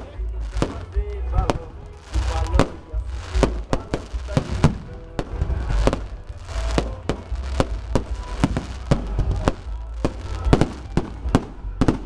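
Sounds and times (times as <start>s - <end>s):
fireworks bangs: 0.0s - 12.0s
low rumble: 0.0s - 12.0s.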